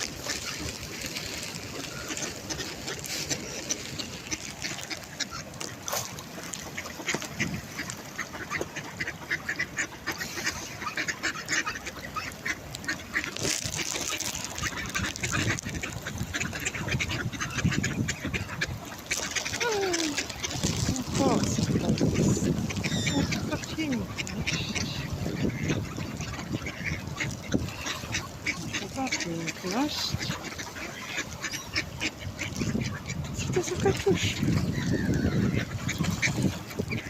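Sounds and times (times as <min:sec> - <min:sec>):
ducks quacking: 0:00.0 - 0:37.0.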